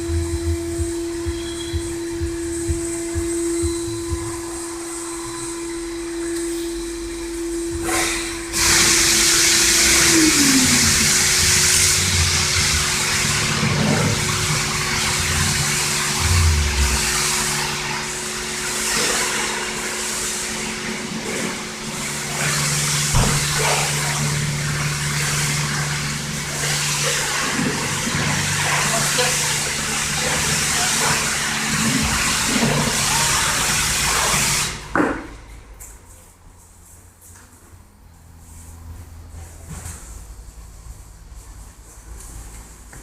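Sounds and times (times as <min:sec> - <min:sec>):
low steady hum: 0:00.0 - 0:08.5, 0:09.8 - 0:18.1
high-pressure water spray hissing: 0:07.8 - 0:34.9.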